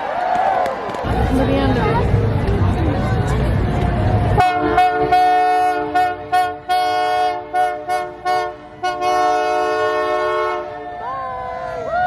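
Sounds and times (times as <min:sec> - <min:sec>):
locomotive air horn: 0:04.4 - 0:11.8.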